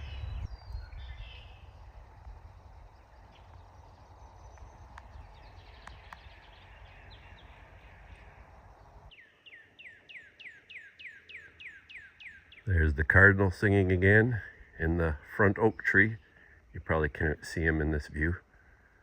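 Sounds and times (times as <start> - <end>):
bird singing clear whistles: 0.0 - 1.8
soft clicks: 4.5 - 6.4.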